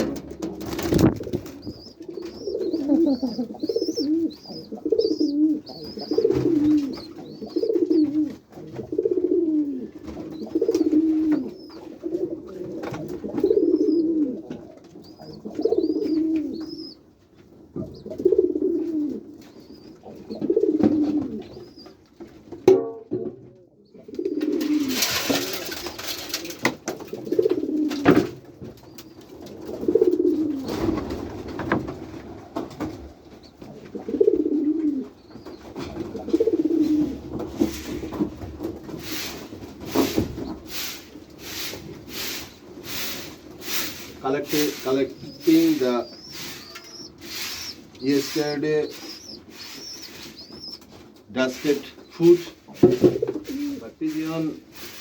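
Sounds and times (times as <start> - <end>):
pigeons cooing: 0.0 - 22.3, 23.1 - 55.0
rustling noise: 0.0 - 22.6, 24.3 - 55.0
faint high chirping: 1.4 - 8.2, 44.6 - 50.9.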